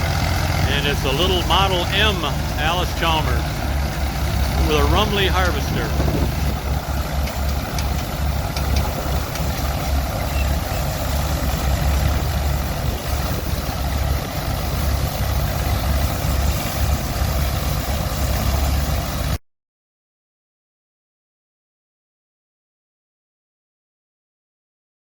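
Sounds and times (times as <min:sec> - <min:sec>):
tractor engine rumbling: 0:00.0 - 0:19.4.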